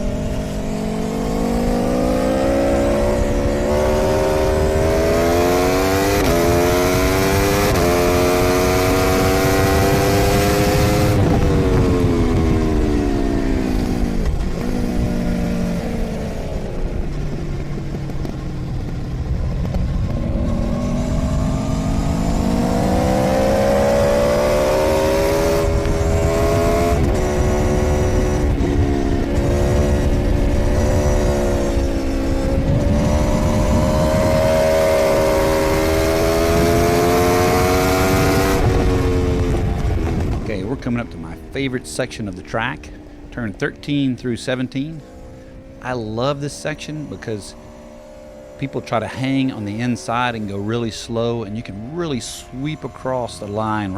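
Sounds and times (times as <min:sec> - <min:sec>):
wind rush: 0:00.0 - 0:47.7
motorcycle engine revving: 0:00.0 - 0:53.9.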